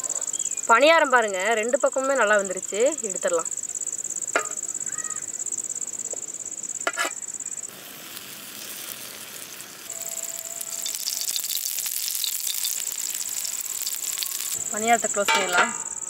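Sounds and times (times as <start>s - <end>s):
insect trilling: 0.0s - 16.0s
food sizzling in a pan: 6.7s - 16.0s.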